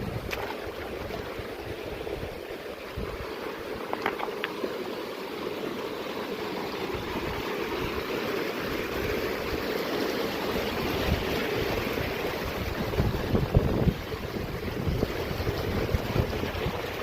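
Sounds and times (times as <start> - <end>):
wind buffeting microphone: 0.0 - 3.4, 10.6 - 17.0
mountain stream rushing: 0.0 - 17.0.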